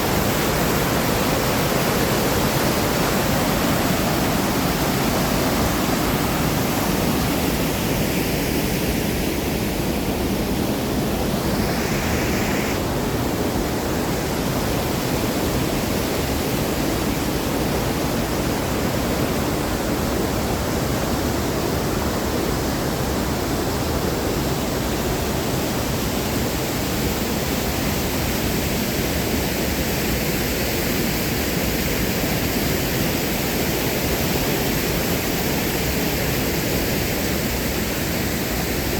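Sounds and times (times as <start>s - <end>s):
waterfall rushing: 0.0s - 21.6s.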